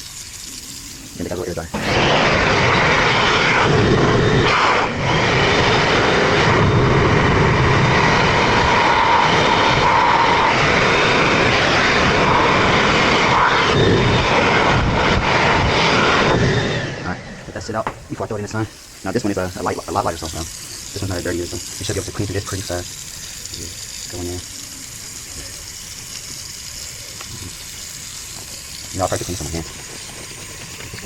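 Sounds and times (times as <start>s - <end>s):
air blower running: 1.7s - 3.4s, 17.3s - 19.0s.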